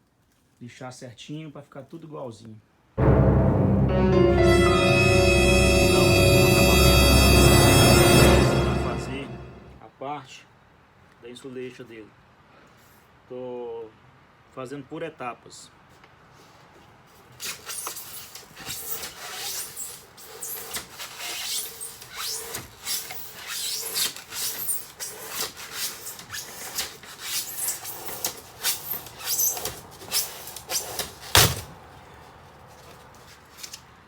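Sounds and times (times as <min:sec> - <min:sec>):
foam being scraped by hand: 0:17.4 - 0:31.7.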